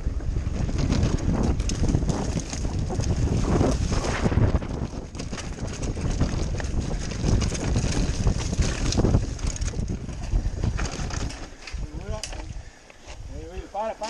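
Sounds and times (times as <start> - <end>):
bike rattling over dirt trail: 0.0 - 14.0
wind buffeting microphone: 0.0 - 14.0.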